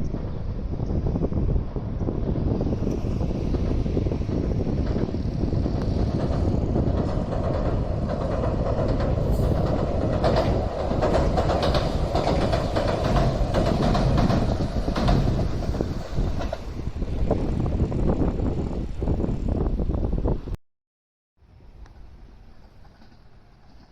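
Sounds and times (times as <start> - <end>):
train rumbling past: 0.0 - 20.6, 21.4 - 23.9
wheels clicking over rail joints: 2.7 - 19.0, 21.8 - 23.9.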